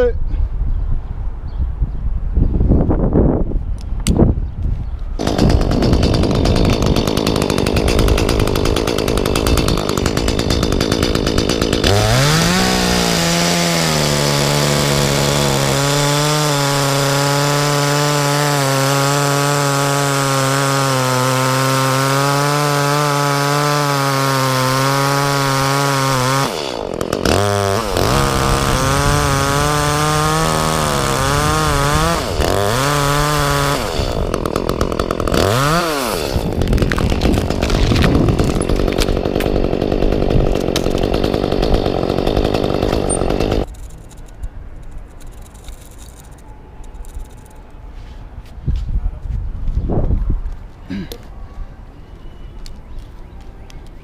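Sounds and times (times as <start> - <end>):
chainsaw cutting wood: 5.2 - 46.4.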